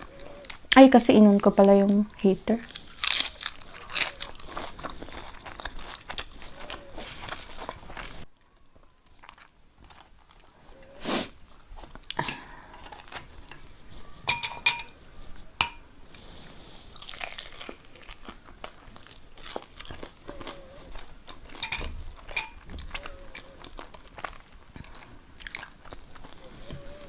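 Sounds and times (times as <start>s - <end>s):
chewing and crunching food: 0.0s - 27.0s
cutlery clinking on plate: 14.2s - 15.0s, 15.6s - 15.8s, 21.5s - 22.8s.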